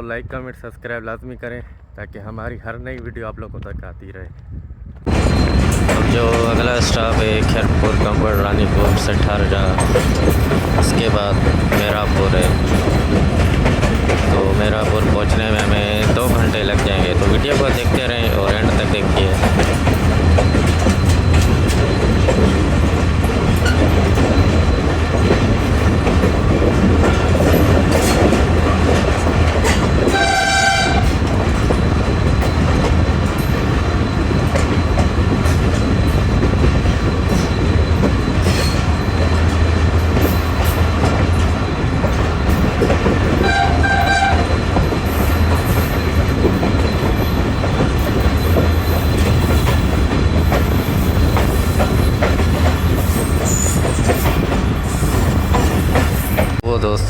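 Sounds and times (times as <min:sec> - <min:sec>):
train rumbling on rails: 0:00.0 - 0:57.0
locomotive horn blasts: 0:30.1 - 0:31.1, 0:43.4 - 0:44.6.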